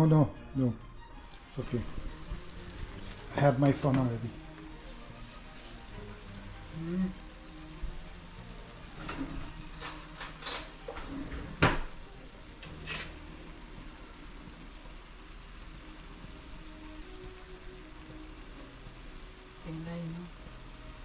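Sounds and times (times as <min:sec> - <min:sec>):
squash sizzling in a pot: 0:00.0 - 0:21.0
clinks: 0:09.0 - 0:11.1.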